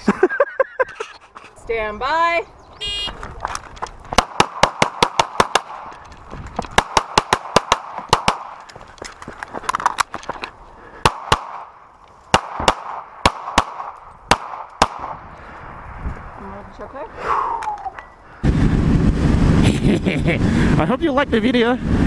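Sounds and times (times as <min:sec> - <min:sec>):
gunshots: 0:04.2 - 0:06.0, 0:06.7 - 0:08.6, 0:11.0 - 0:15.2.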